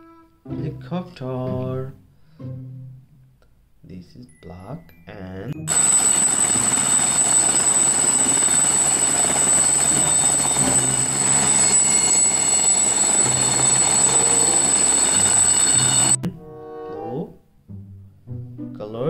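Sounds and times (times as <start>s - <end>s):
helicopter rotor and engine: 5.7s - 16.2s
high thin whine: 5.7s - 16.2s.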